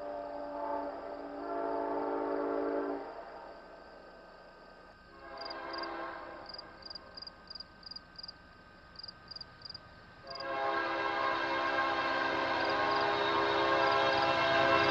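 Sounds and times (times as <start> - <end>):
locomotive horn blasts: 0.0 - 3.1, 5.1 - 6.5, 10.2 - 14.9.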